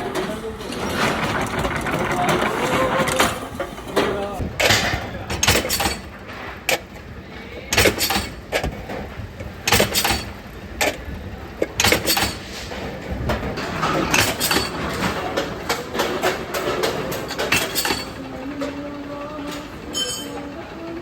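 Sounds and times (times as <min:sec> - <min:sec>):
machinery din: 0:00.0 - 0:06.7, 0:13.1 - 0:21.0
metal clanking on metal: 0:00.0 - 0:06.9, 0:07.7 - 0:11.0, 0:11.7 - 0:20.6.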